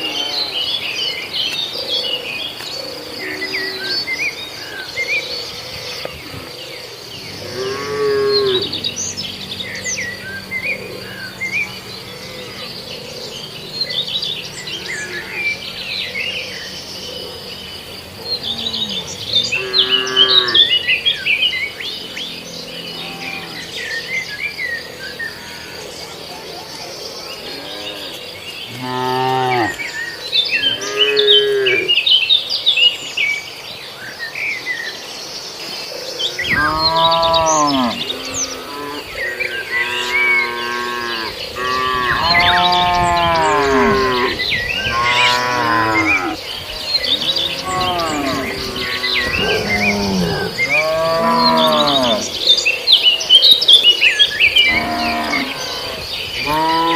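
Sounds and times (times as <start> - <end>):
birds chirping: 0.0 - 56.9
cattle mooing: 7.2 - 11.8, 18.4 - 20.8, 22.9 - 23.8, 27.5 - 29.8, 30.6 - 32.0, 36.5 - 39.2, 39.8 - 52.4, 54.6 - 56.9.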